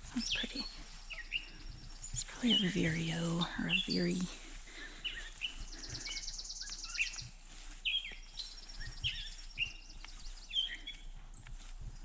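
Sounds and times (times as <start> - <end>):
songbird singing: 0.0 - 12.0.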